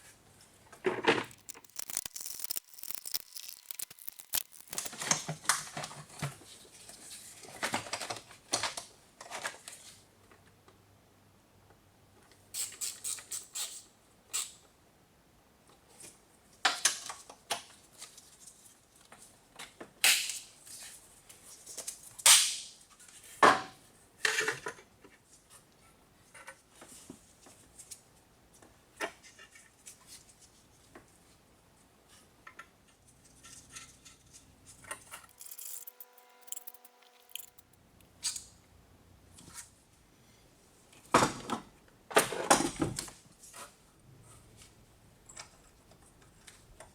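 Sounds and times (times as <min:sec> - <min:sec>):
metal tools clinking and clanking: 0:35.3 - 0:37.8.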